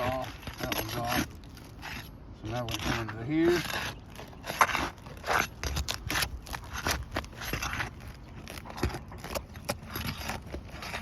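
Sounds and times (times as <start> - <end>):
scraping and crackling clicks: 0.0 - 11.0.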